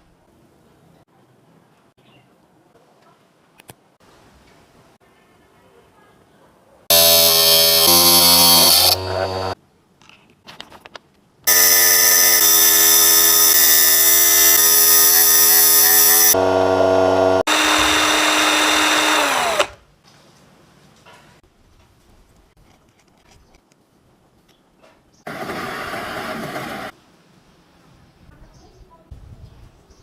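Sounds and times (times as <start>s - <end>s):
small electric motor running: 6.9s - 9.6s, 11.5s - 19.8s.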